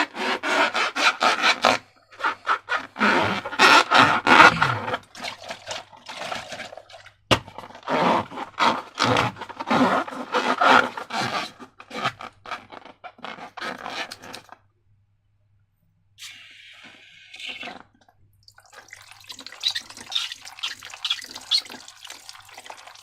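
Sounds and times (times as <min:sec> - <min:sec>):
slime scraping and rubbing: 0:00.0 - 0:05.1, 0:07.6 - 0:14.6, 0:19.5 - 0:22.0.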